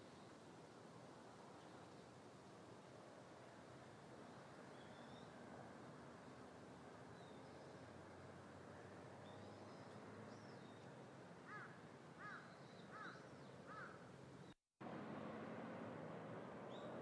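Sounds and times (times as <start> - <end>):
small birds chirping: 4.3 - 5.4, 9.2 - 14.6
bird calling: 11.4 - 14.0.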